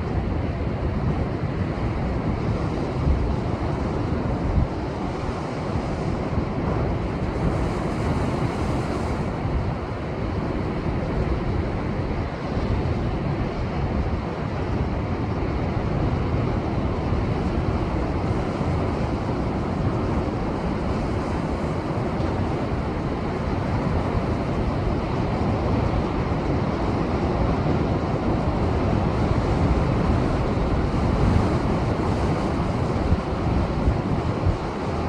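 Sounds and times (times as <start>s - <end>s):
wind buffeting microphone: 0.0s - 15.0s, 16.8s - 35.0s
waves breaking on rocky shore: 7.0s - 11.8s, 17.7s - 26.4s, 28.2s - 35.0s.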